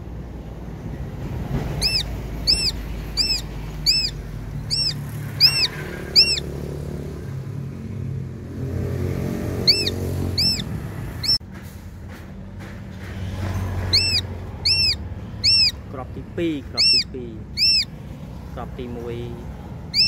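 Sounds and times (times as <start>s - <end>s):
steady low rumble: 0.0s - 6.6s
bird calling: 1.7s - 6.9s, 9.4s - 11.4s, 13.8s - 18.0s, 18.6s - 20.0s.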